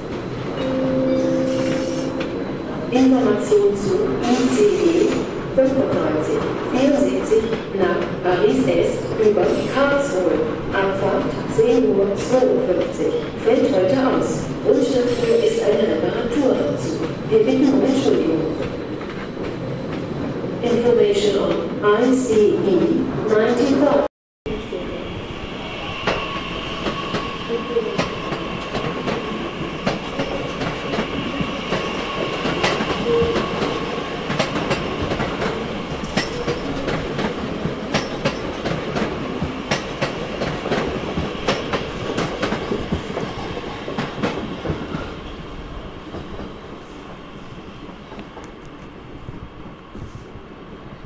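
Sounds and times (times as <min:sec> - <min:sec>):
train rumble: 0:00.0 - 0:47.2
train wheels clicking over rail joints: 0:28.0 - 0:45.0.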